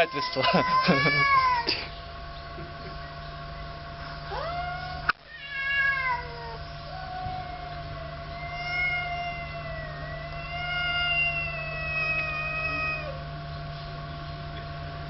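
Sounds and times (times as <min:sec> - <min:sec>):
cats yowling: 0:00.0 - 0:01.9, 0:04.2 - 0:13.4.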